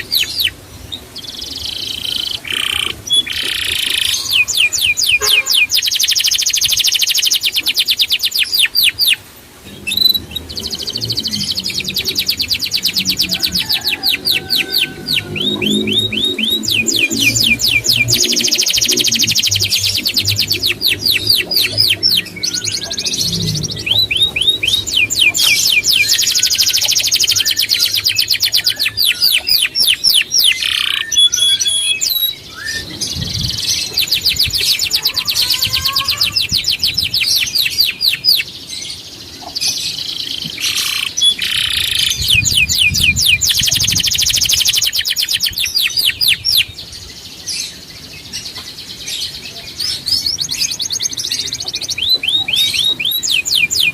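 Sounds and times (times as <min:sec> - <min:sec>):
songbird singing trills: 0:00.0 - 0:53.9.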